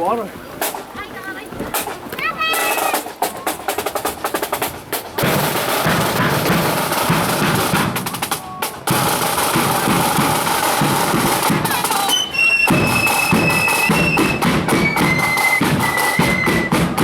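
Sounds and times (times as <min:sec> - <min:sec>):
marching band playing: 0:00.0 - 0:17.0
rapid snare drum strokes: 0:00.6 - 0:01.0, 0:01.6 - 0:17.0.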